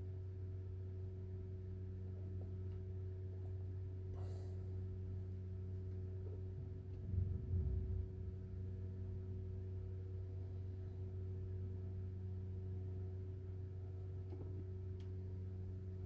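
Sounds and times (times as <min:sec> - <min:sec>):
low hum: 0:00.0 - 0:16.0
brief low rumble: 0:06.5 - 0:10.2.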